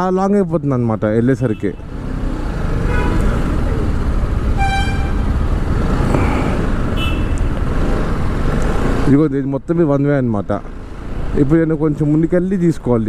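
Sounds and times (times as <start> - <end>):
vehicle horns: 1.4 - 7.6
motorcycle engine and road noise: 1.8 - 9.2.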